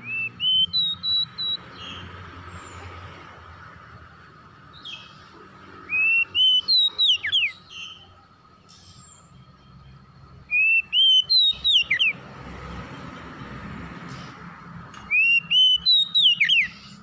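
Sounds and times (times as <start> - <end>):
bird singing whistled phrases: 0.0 - 2.0, 5.9 - 8.1, 10.5 - 12.2, 15.0 - 17.0.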